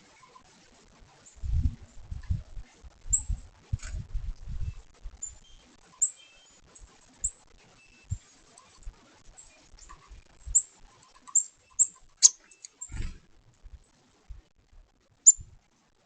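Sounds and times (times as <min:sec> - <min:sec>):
faint high bird chirps: 0:04.6 - 0:08.8, 0:09.4 - 0:13.1, 0:15.2 - 0:15.5.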